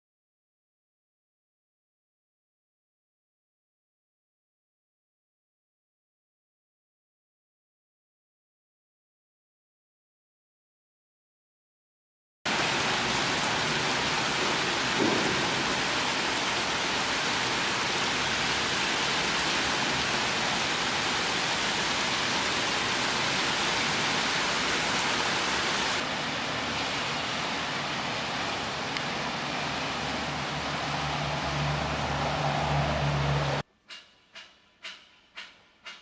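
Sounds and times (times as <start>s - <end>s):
steady rain falling: 12.5s - 33.6s
low knock: 14.4s - 15.9s.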